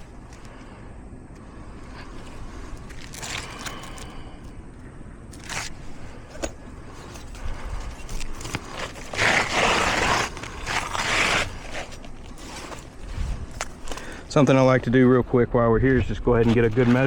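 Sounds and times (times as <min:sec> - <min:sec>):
shingle scraping against roof: 0:05.3 - 0:15.0, 0:16.3 - 0:17.0.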